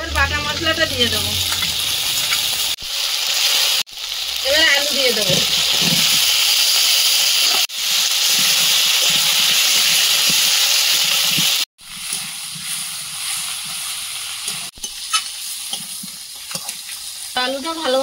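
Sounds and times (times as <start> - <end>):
food frying in hot oil: 0.0 - 18.0.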